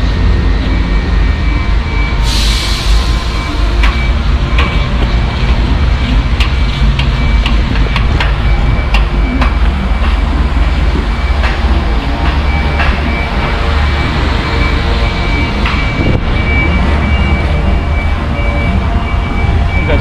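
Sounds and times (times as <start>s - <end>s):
truck diesel engine rumbling: 0.0s - 20.0s.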